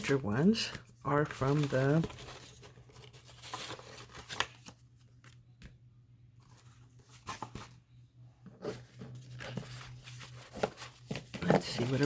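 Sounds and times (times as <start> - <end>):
paper cards rustling: 0.0 - 5.8, 8.6 - 12.0
faint steady hum: 0.0 - 12.0.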